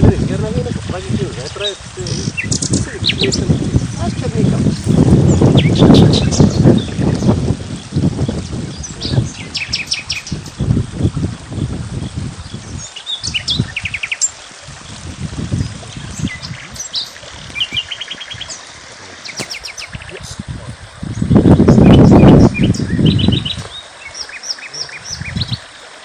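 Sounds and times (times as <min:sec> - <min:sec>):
small birds chirping: 0:01.1 - 0:25.9.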